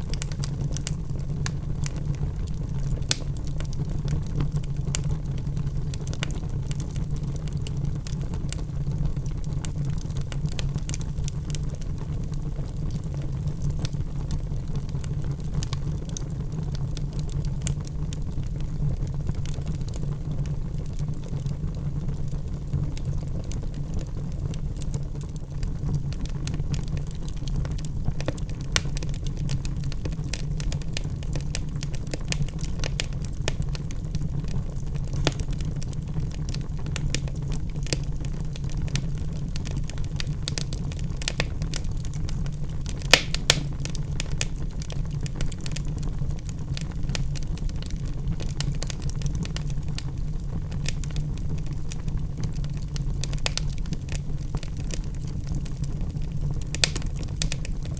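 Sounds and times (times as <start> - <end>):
logs crackling and popping: 0.0 - 57.9
low rumble of flames: 0.0 - 57.9.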